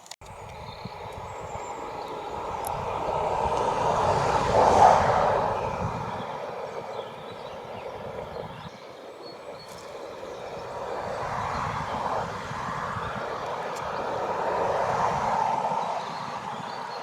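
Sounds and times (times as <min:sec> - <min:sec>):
vehicle passing by: 0:01.0 - 0:08.6, 0:09.9 - 0:17.0.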